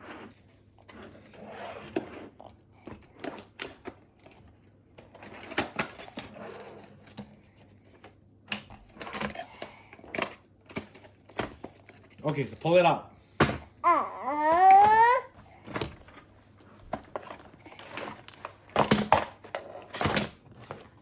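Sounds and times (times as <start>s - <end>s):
packaging clicks and knocks: 16.9s - 21.0s.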